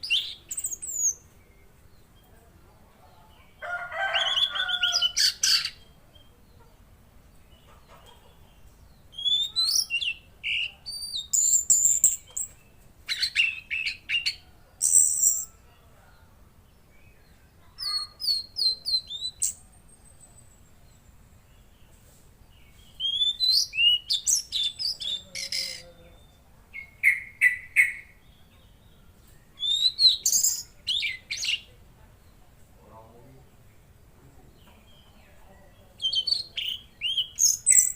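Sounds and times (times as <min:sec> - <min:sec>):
bird chirping and whistling: 0:00.0 - 0:01.2, 0:09.1 - 0:12.5, 0:13.1 - 0:15.5, 0:17.8 - 0:19.6, 0:23.0 - 0:25.8, 0:29.6 - 0:31.6, 0:36.0 - 0:37.9.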